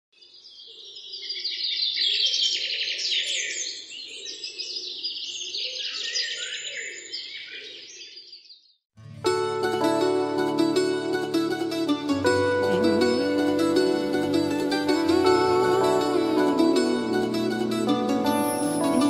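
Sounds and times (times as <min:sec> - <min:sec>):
birds chirping and singing: 0:00.6 - 0:08.6.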